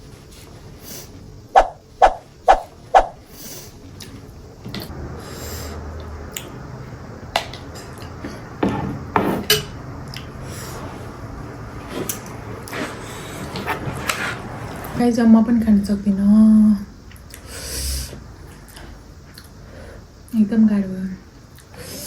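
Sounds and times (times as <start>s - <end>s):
dishes and cutlery clattering: 8.7s - 9.8s.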